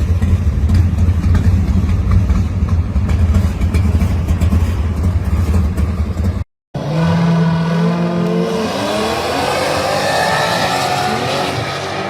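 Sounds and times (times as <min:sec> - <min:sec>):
car engine idling: 0:00.0 - 0:06.4.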